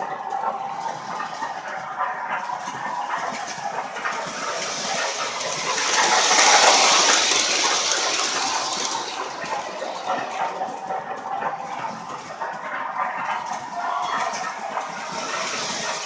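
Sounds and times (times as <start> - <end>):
model train running: 0.0 - 16.0
hissing rush: 2.7 - 11.0.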